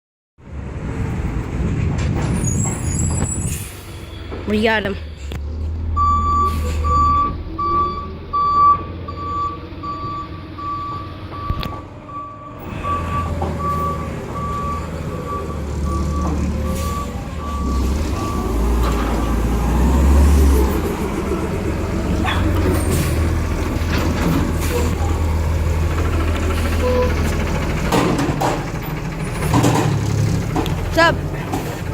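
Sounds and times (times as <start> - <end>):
truck engine rumble: 0.4 - 31.9
reversing alarm beeping: 5.9 - 19.4.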